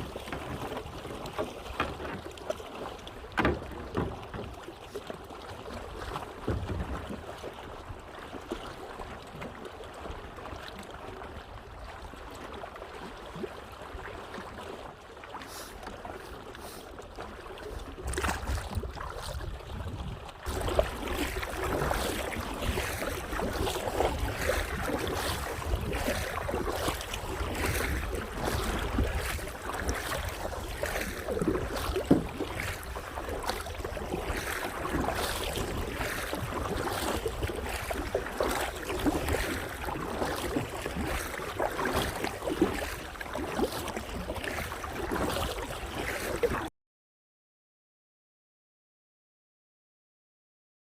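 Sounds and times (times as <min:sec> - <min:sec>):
water splashing around kayak: 0:00.0 - 0:46.7
wind rumbling on microphone: 0:18.0 - 0:44.3.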